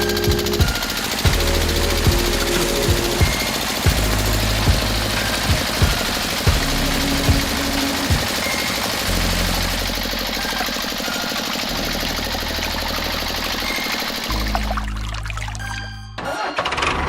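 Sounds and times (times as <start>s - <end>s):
tractor engine running: 0.0s - 14.8s.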